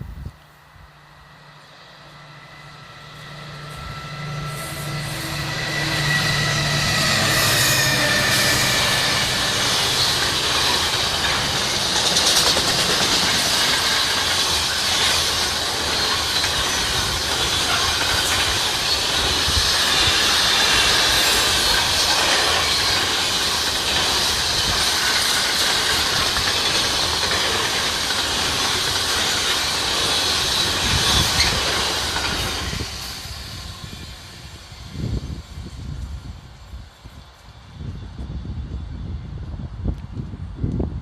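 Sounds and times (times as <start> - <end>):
train wheels on rail: 0.0 - 41.0
thin squealing tones: 2.2 - 12.5.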